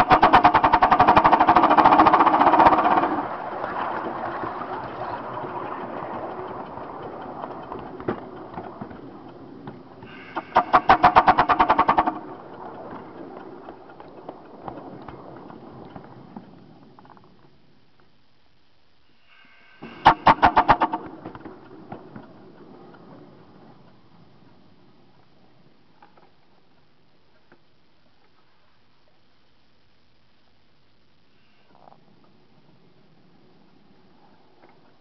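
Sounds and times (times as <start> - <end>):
locomotive exhaust pulses: 0.0 - 17.8, 19.1 - 26.8.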